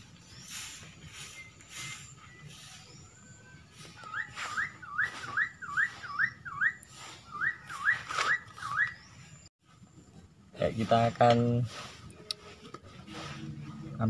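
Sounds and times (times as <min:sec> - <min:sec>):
bird whistling rising notes: 0:00.0 - 0:09.5.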